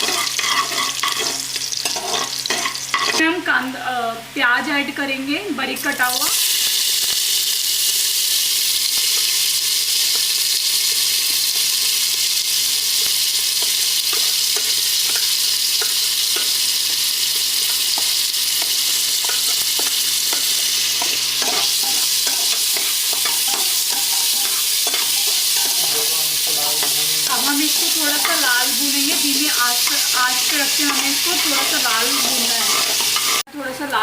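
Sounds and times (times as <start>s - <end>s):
spoon scraping a pot: 0.0s - 3.2s, 17.6s - 26.0s, 26.8s - 33.4s
onion sizzling in hot oil: 0.0s - 4.7s, 5.4s - 34.0s.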